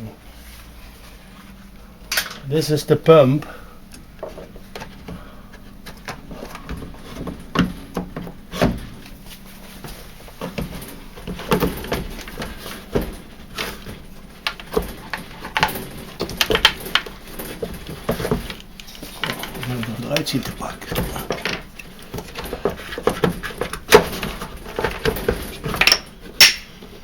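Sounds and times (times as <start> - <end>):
plastic parts clicking and rattling: 10.4 - 26.8.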